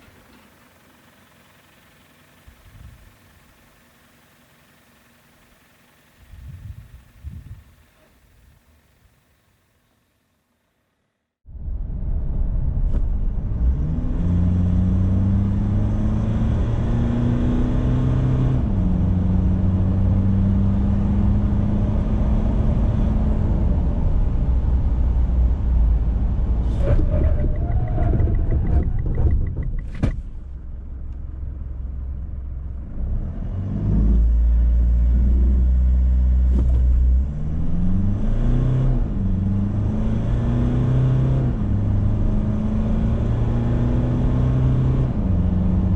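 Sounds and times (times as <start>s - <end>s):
low rumble: 11.5s - 15.2s, 23.9s - 33.0s
diesel engine accelerating: 11.6s - 45.9s.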